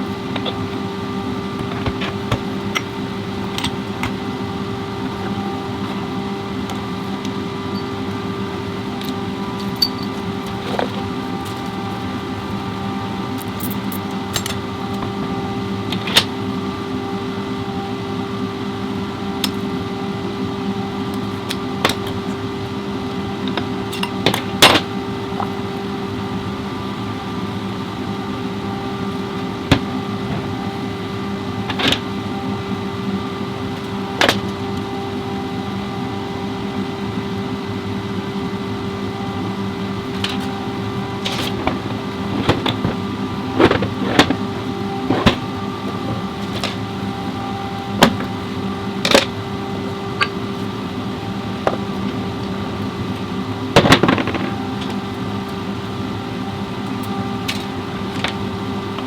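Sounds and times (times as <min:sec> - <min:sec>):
machine hum: 0:00.0 - 0:59.0.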